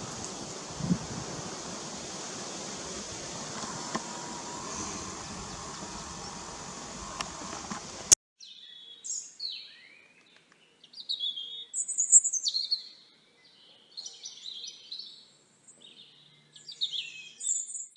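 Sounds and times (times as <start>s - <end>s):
outdoor background noise: 0.0s - 8.2s
songbird chirping and warbling: 0.0s - 8.8s.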